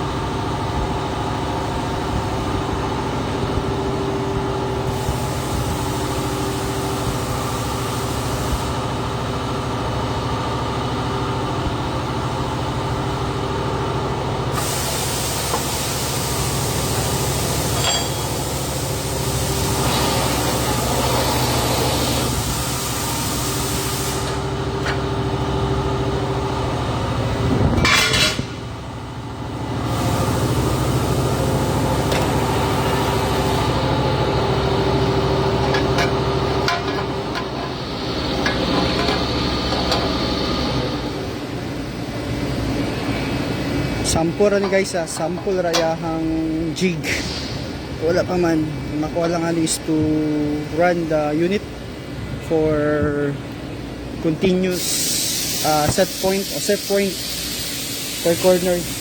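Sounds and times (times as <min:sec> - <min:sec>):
welding arc hissing and crackling: 0:05.0 - 0:08.8, 0:14.6 - 0:24.4, 0:54.7 - 0:59.0
machine hum: 0:09.6 - 0:54.2.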